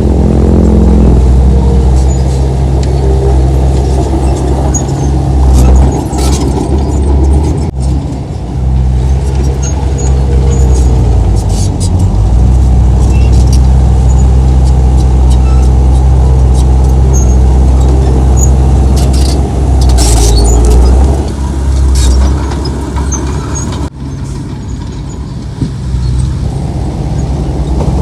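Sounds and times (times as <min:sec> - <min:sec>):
heavy diesel engine running: 0:00.0 - 0:28.0
metal clanks and rattles: 0:03.9 - 0:17.4, 0:18.2 - 0:26.3.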